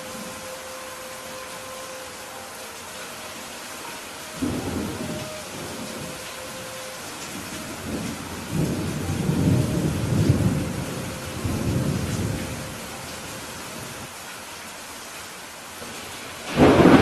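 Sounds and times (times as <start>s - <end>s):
rain falling: 0.0s - 17.0s
rolling thunder: 4.4s - 13.1s, 16.5s - 17.0s.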